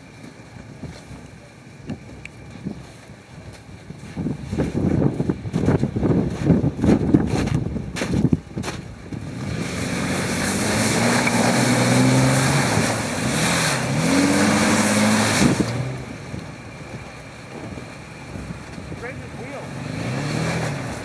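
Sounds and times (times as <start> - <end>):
off-road vehicle engine revving: 4.6 - 21.0.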